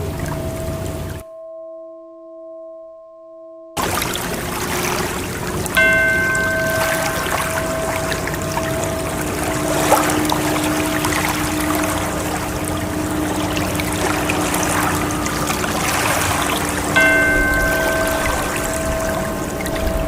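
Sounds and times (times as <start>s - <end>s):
rushing water: 0.0s - 1.2s, 3.8s - 20.0s
bell-like chime tones: 5.8s - 20.0s.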